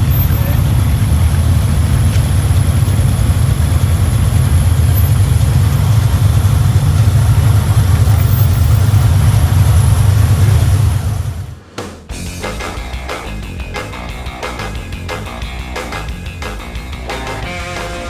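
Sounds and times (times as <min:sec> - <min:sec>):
car engine and road noise: 0:00.0 - 0:11.7.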